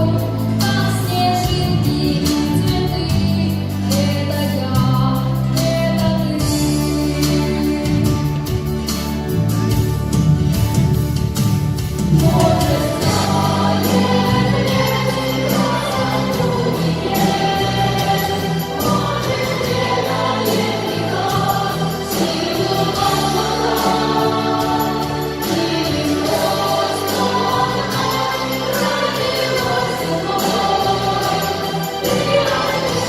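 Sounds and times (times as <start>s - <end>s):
choir singing: 12.1s - 33.0s.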